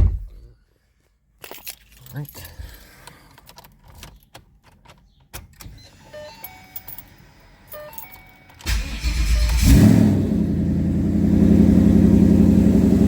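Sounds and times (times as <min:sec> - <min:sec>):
keys clicking: 0:01.4 - 0:05.5, 0:06.4 - 0:08.8
car engine starting and idling: 0:08.5 - 0:13.0.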